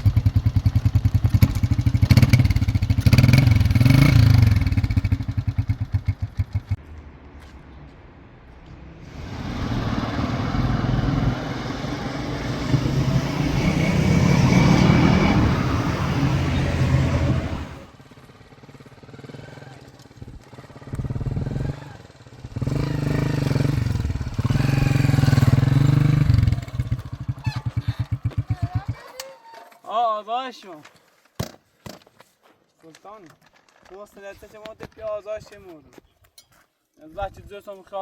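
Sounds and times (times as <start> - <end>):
motorcycle engine revving: 0.0 - 6.9, 8.8 - 29.1.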